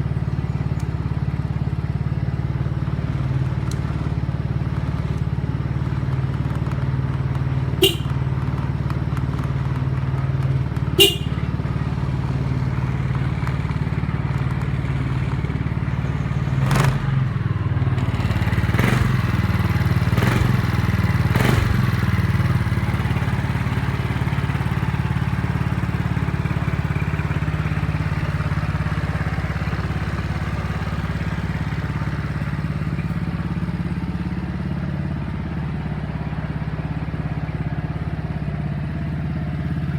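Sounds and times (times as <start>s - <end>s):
scooter engine idling: 0.0s - 39.9s.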